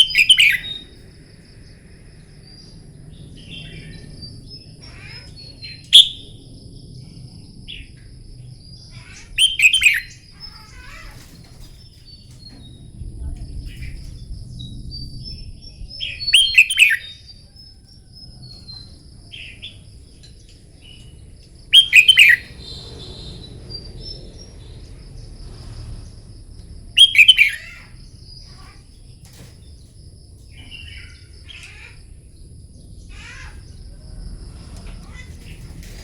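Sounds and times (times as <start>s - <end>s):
soft bird chirps: 0.0s - 8.1s, 8.8s - 26.2s, 27.0s - 36.0s
bulbul song: 21.7s - 23.3s.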